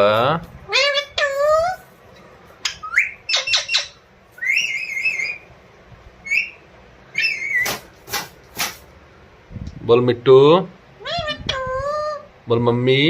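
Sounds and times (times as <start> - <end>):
parrot squawking and calling: 0.7 - 1.9, 2.6 - 5.6, 6.2 - 7.9, 11.0 - 12.3.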